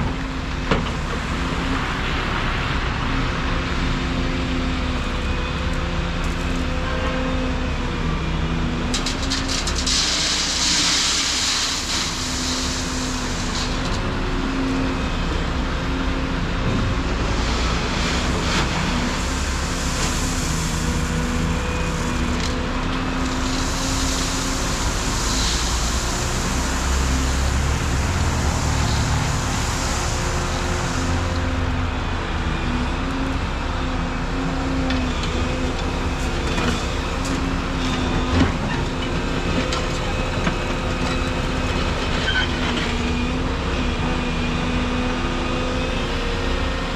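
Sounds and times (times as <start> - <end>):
excavator diesel engine: 0.0 - 46.9.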